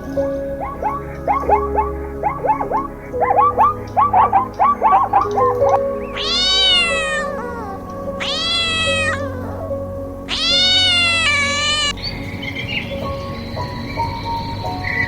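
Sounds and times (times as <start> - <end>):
faint background music: 0.0 - 15.0
animal crying high: 0.6 - 12.0.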